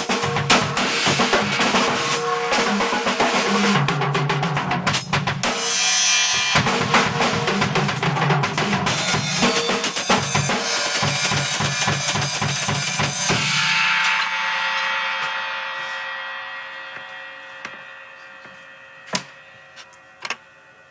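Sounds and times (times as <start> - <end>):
drum kit playing: 0.0 - 14.3
crash cymbal ringing: 5.5 - 7.6, 8.9 - 20.9.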